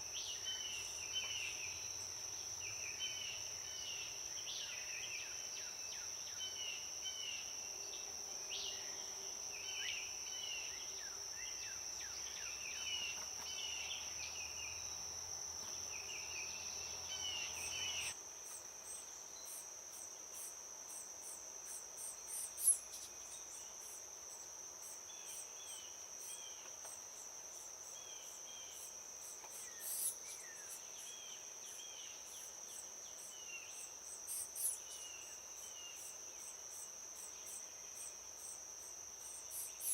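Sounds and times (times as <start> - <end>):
insects trilling: 0.0 - 39.9
short insect chirps: 9.6 - 39.9.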